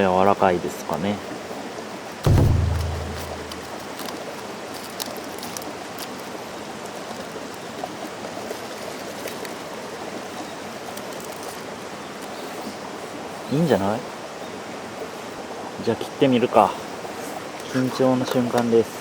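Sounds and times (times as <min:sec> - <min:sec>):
mountain stream flowing: 0:00.0 - 0:19.0.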